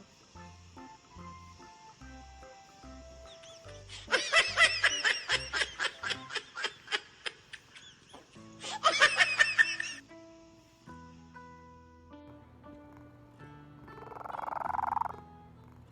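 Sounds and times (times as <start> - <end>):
background music: 0.0 - 7.3, 8.2 - 15.9
person laughing: 3.3 - 10.0.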